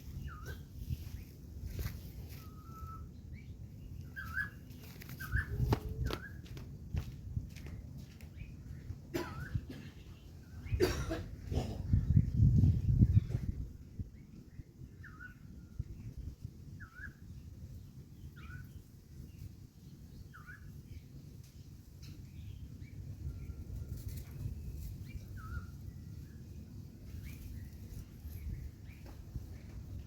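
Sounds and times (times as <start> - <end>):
bird chirping: 0.0 - 6.4.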